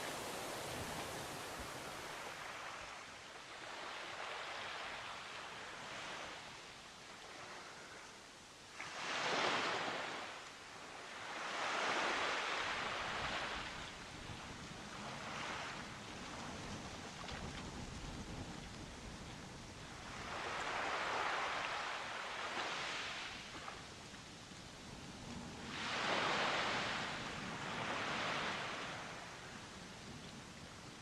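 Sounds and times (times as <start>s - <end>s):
ocean waves breaking: 0.0s - 6.4s, 14.9s - 23.9s, 24.8s - 29.7s.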